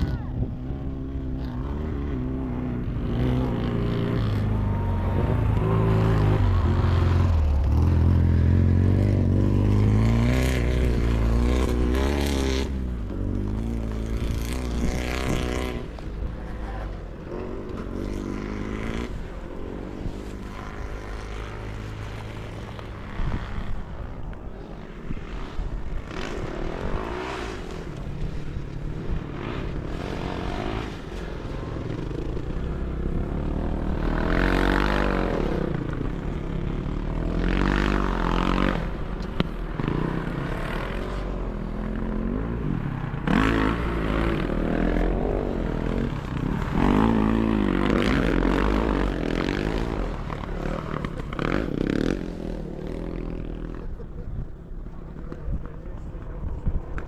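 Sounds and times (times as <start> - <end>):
motorcycles revving: 0.0 - 57.0.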